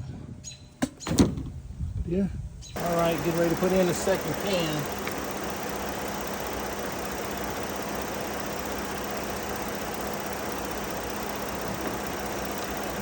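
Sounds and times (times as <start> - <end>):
car engine idling: 2.8 - 13.0.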